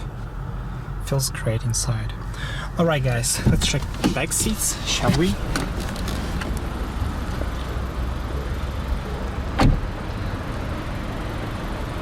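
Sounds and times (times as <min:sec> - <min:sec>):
car door shutting: 0:03.3 - 0:06.8, 0:09.6 - 0:09.9.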